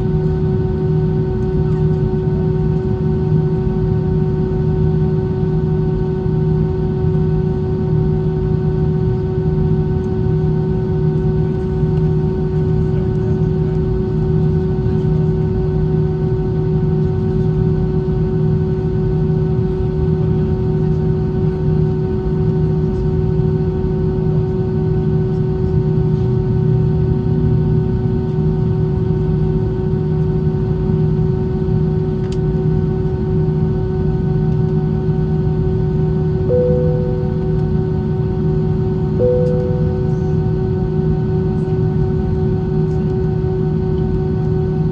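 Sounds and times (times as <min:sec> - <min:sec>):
constant multi-pitched hum: 0:39.2 - 0:41.1
airplane cabin engine roar: 0:39.2 - 0:44.9.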